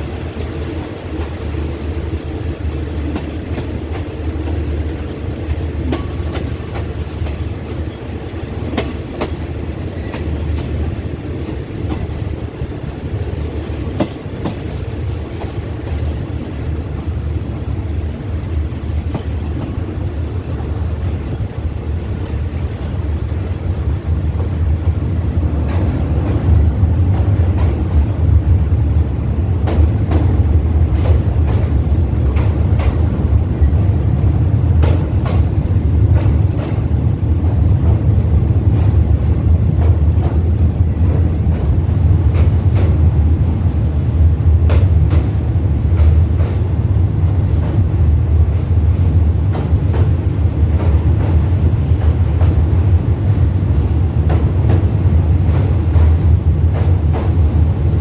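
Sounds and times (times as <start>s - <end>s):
train rumbling on bridge: 0.0s - 58.0s.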